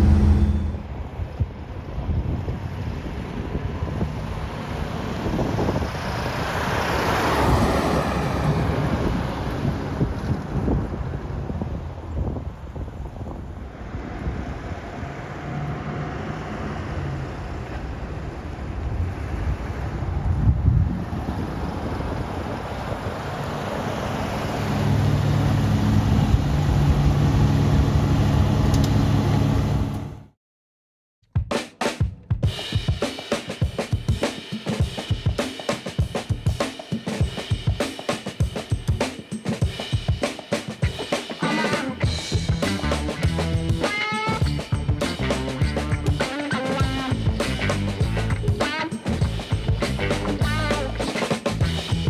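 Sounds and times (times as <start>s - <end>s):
car engine rumbling: 0.0s - 1.4s
wind buffeting microphone: 0.0s - 15.3s, 18.2s - 24.6s
car engine and road noise: 0.0s - 30.3s, 42.0s - 52.0s.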